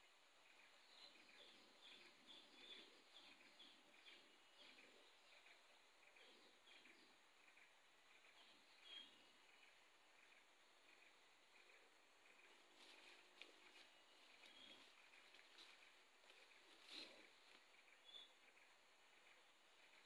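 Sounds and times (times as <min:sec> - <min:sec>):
faint bird chirping: 0:00.0 - 0:20.0
soft rustles: 0:12.5 - 0:17.8.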